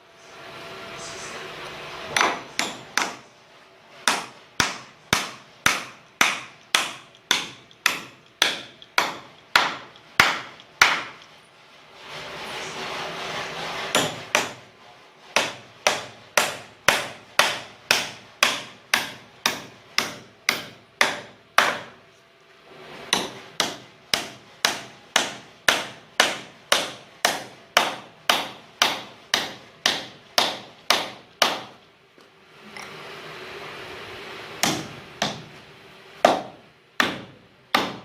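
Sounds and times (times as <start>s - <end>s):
hammer striking wood: 2.1s - 3.3s, 4.0s - 11.3s, 13.9s - 14.6s, 15.4s - 22.0s, 23.1s - 31.8s, 34.6s - 35.6s, 36.2s - 38.0s.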